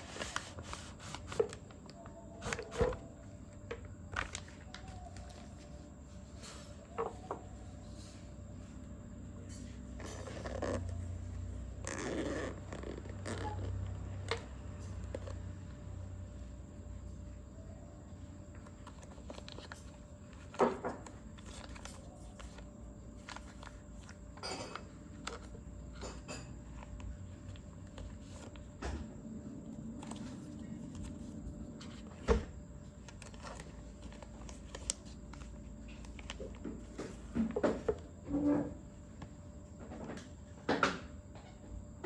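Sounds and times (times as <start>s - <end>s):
packaging clicks and rustles: 0.0s - 7.3s, 18.5s - 29.1s, 29.7s - 38.1s.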